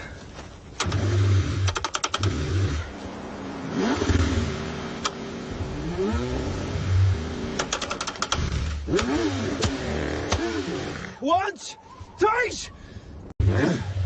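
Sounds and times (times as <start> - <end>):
car engine revving: 0.8 - 11.2
sharp clattering clicks: 1.6 - 2.4, 7.6 - 10.4.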